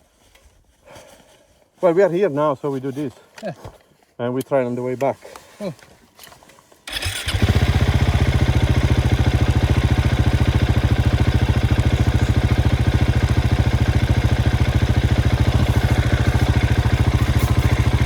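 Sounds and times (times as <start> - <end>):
motorcycle engine idling: 6.9 - 18.0.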